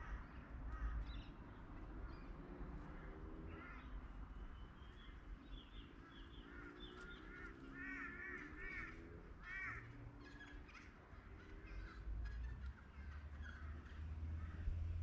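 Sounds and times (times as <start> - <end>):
crow-like caws: 0.0 - 1.3, 2.9 - 4.0, 6.1 - 14.7
other bird calls: 4.8 - 14.6.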